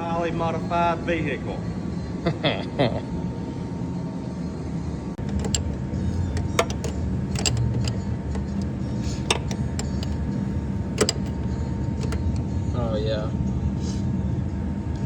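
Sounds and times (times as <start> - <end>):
engine and drivetrain drone: 3.3 - 15.0
clicks and rattles: 5.2 - 12.5.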